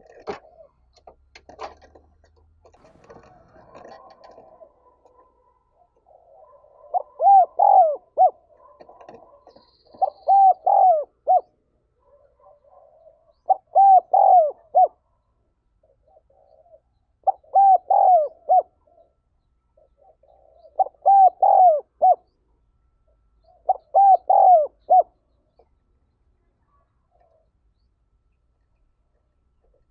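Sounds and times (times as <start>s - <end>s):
dove cooing: 0.0s - 1.9s, 2.8s - 15.2s, 15.8s - 19.2s, 19.8s - 22.4s, 23.4s - 25.7s, 26.6s - 27.6s.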